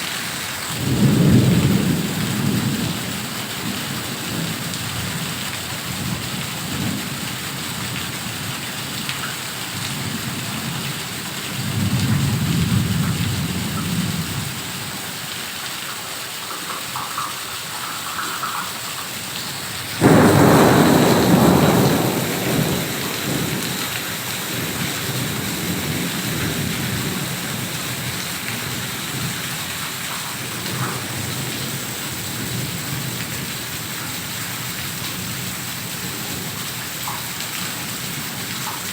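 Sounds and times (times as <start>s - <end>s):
heavy rain falling: 0.0s - 38.9s
loud thunderclap: 0.8s - 2.9s, 20.0s - 28.1s
low roll of thunder: 0.8s - 3.7s, 20.0s - 29.3s.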